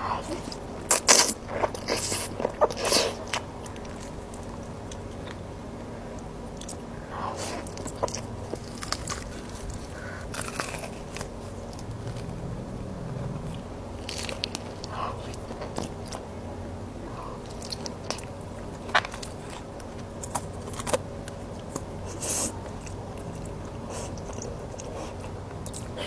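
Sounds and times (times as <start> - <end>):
chewing food: 0.0 - 16.3, 17.2 - 26.0
crisp crunches: 7.4 - 12.4.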